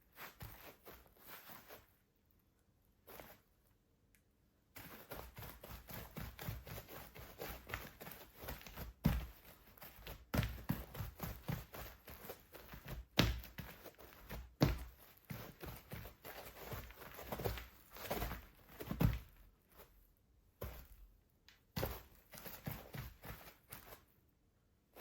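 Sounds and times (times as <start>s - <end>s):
football boots running: 4.8s - 19.9s, 20.6s - 21.1s, 21.7s - 24.0s.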